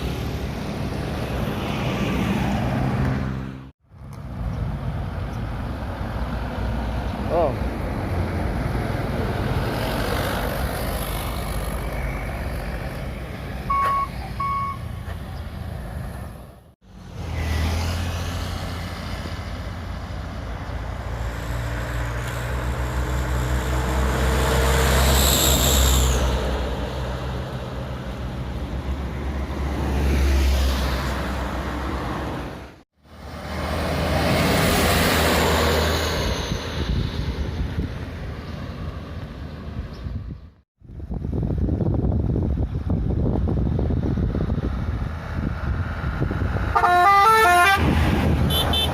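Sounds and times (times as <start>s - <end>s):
heavy truck engines passing: 0.0s - 48.9s
short beeps: 13.7s - 14.8s.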